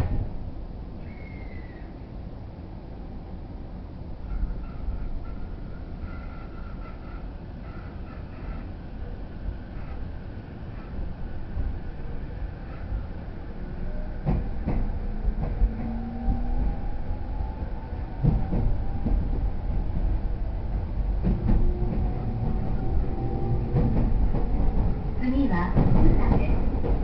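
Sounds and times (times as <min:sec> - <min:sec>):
train rumble: 0:00.0 - 0:27.0
wheels clacking over rail joints: 0:14.2 - 0:16.8, 0:17.8 - 0:27.0.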